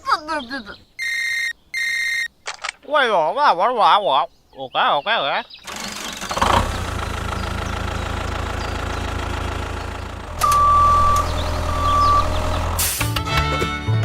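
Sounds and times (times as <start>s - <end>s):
long high beeps: 1.0s - 2.3s, 10.4s - 12.8s
vehicle engine running: 5.6s - 13.3s.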